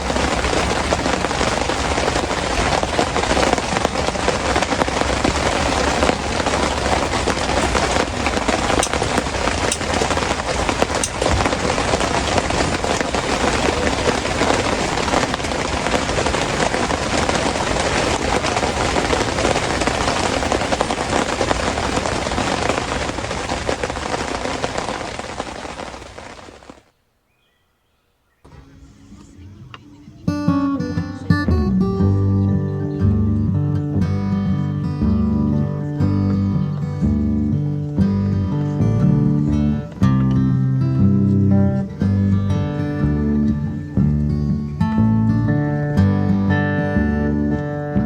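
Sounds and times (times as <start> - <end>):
heavy rain patter: 0.0 - 26.9
rain drop ticks: 0.0 - 26.9.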